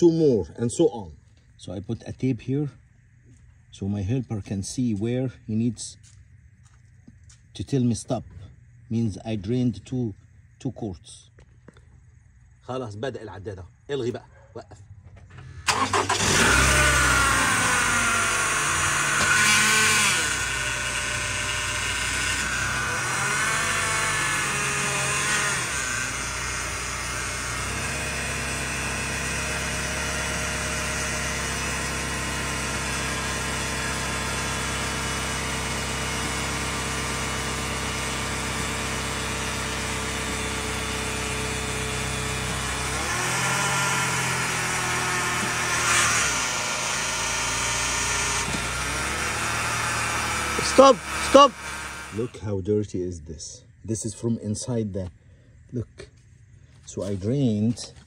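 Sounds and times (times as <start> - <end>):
car engine starting and idling: 15.0 - 52.4.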